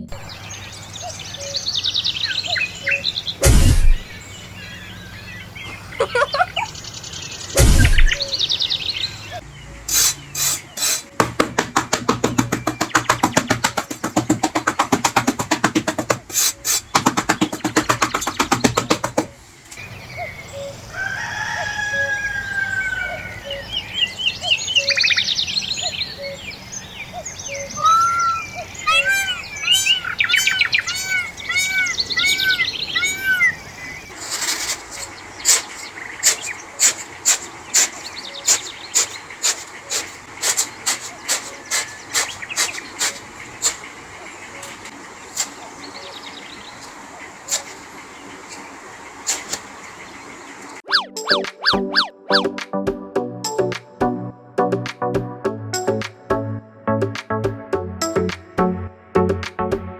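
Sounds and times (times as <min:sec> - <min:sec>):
birds chirping: 0:00.0 - 0:52.6
rapid clicking or tapping: 0:10.8 - 0:19.4, 0:34.2 - 0:43.8.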